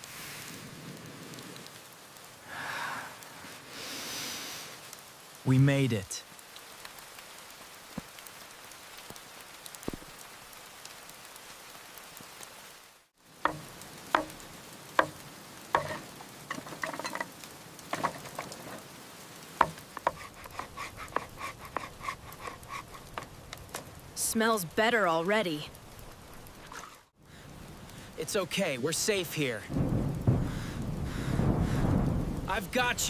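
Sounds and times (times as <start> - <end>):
food sizzling over a fire: 0.0 - 33.0
rain hiss: 0.0 - 33.0
sharp pops and crackles: 6.2 - 12.6, 13.2 - 24.2, 29.7 - 33.0.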